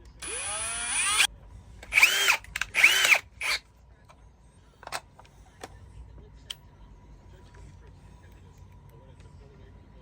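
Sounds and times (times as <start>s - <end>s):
power drill whirring: 0.2s - 1.3s, 1.9s - 3.6s.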